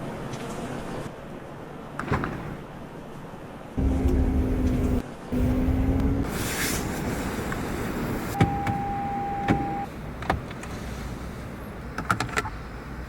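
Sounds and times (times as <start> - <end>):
low steady hum: 7.8 - 13.0
steady electronic beep: 8.4 - 9.9.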